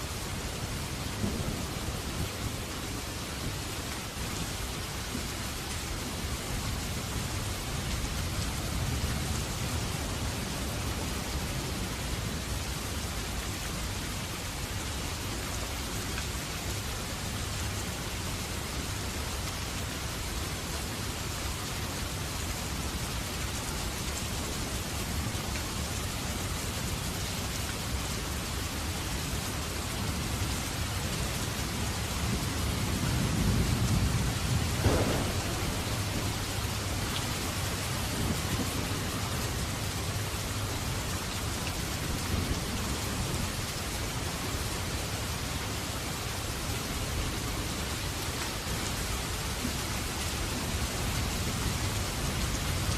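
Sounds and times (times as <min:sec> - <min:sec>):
steady rain: 0:00.0 - 0:52.9
thunder rolling and cracking: 0:33.4 - 0:39.1.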